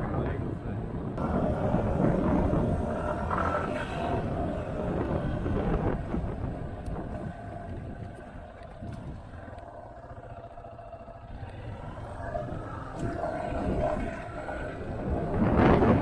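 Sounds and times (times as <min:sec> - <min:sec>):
wind rush on microphone: 0:00.0 - 0:16.0
motorcycle engine running: 0:01.1 - 0:16.0.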